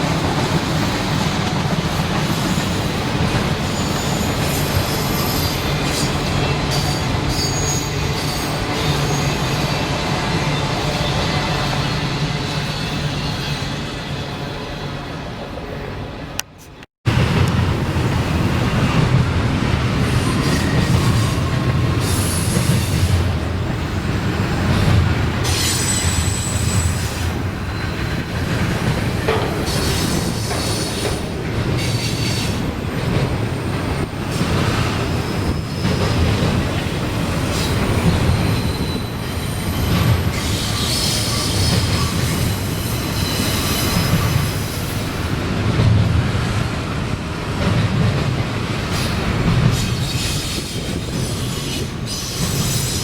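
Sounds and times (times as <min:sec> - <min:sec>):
freight train rumbling past: 0:00.0 - 0:53.0
train wheels squealing: 0:03.6 - 0:14.9, 0:20.0 - 0:23.2, 0:25.4 - 0:32.7, 0:33.6 - 0:45.2, 0:48.9 - 0:53.0.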